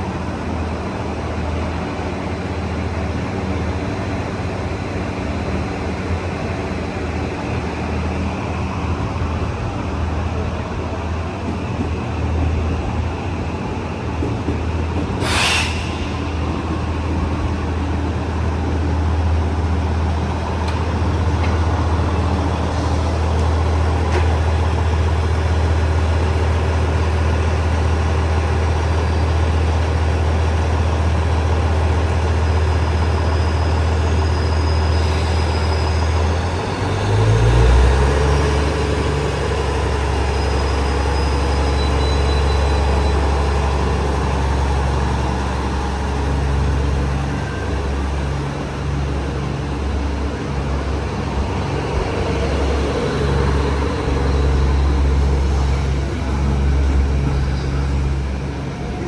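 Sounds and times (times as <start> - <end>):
diesel train engine idling: 0.0 - 59.0
air brake hiss: 15.2 - 17.3.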